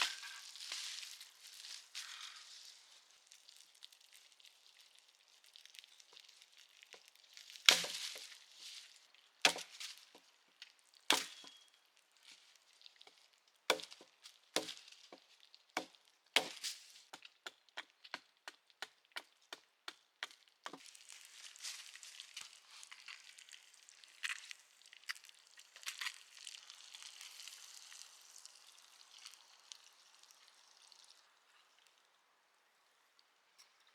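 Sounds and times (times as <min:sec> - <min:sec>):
axe chopping wood: 0:07.7 - 0:08.3, 0:09.5 - 0:09.8, 0:11.1 - 0:11.6, 0:13.7 - 0:15.2, 0:15.8 - 0:16.6.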